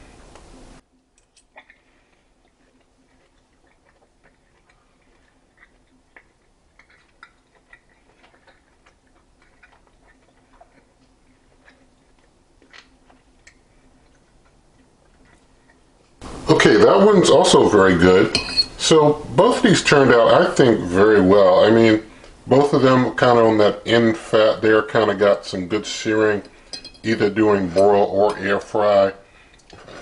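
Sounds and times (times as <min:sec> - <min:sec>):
faint steady hum: 0:00.0 - 0:30.0
person chewing with mouth clicks: 0:00.4 - 0:16.2, 0:29.4 - 0:30.0.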